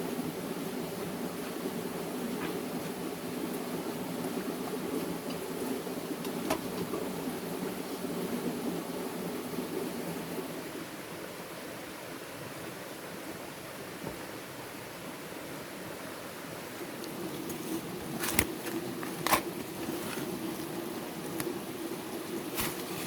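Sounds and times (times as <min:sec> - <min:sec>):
outdoor background hiss: 0:00.0 - 0:23.0.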